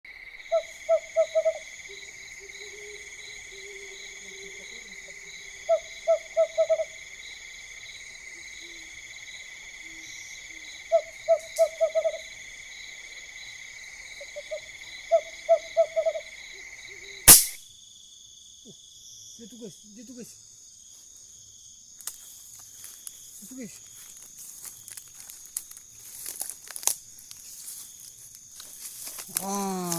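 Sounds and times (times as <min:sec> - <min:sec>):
insects trilling: 0:00.1 - 0:29.9
owl hooting: 0:00.4 - 0:07.0, 0:09.9 - 0:12.3, 0:14.2 - 0:17.3
sharp click: 0:17.3 - 0:17.6.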